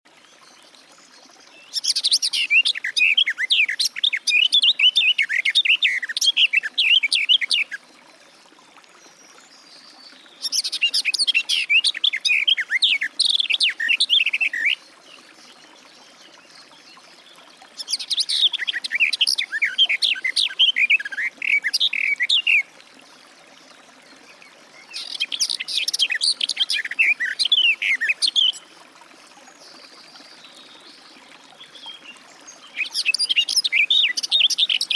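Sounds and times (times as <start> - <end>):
warbler singing: 29.7 - 34.9.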